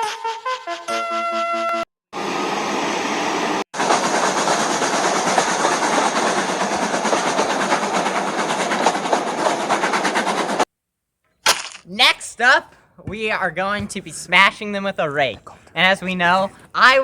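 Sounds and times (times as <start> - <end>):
train rattling along track: 3.4 - 10.7.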